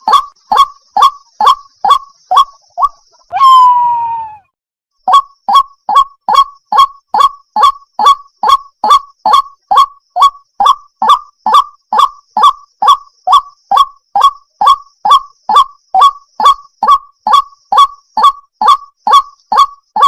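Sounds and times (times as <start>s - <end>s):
waterhen honking calls: 0.0s - 4.4s.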